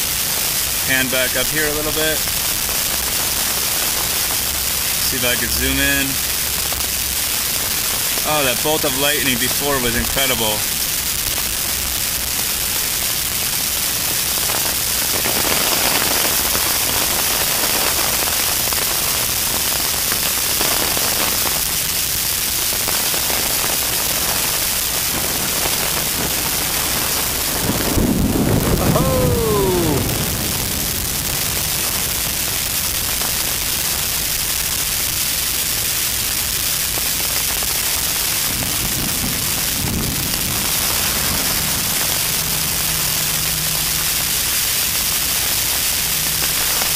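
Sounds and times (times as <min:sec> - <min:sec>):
heavy rain pouring: 0:00.0 - 0:46.9
falling tone: 0:28.2 - 0:30.8.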